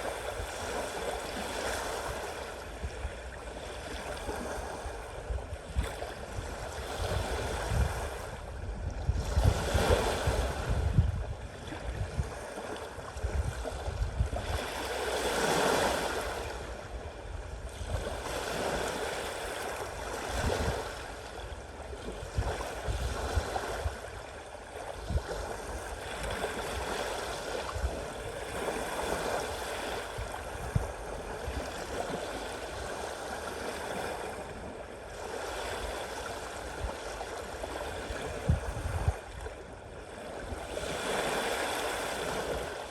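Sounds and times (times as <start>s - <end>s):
sea waves splashing: 14.4s - 17.1s, 17.8s - 42.9s.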